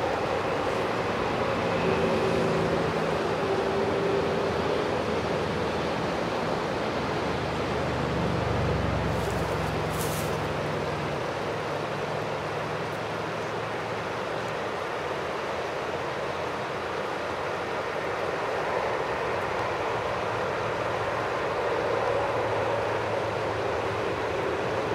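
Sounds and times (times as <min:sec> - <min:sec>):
jet engines rushing: 0:00.0 - 0:12.7.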